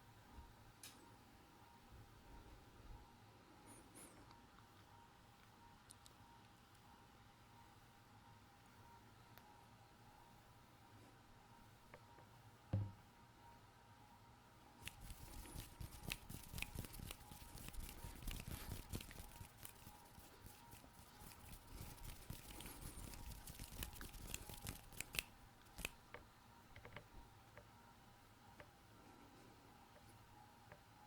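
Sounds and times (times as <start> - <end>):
soft low thump: 12.7 - 13.0
hands rubbing and scratching: 14.8 - 26.0
small clicks: 14.8 - 26.2.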